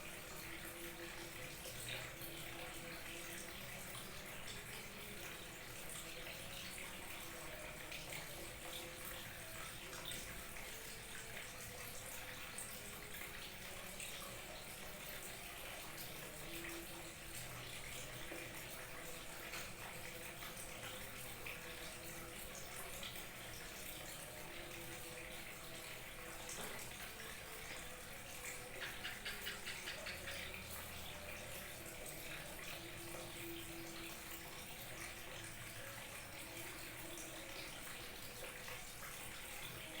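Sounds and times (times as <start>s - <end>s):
small waterfall splashing: 0.0s - 40.0s.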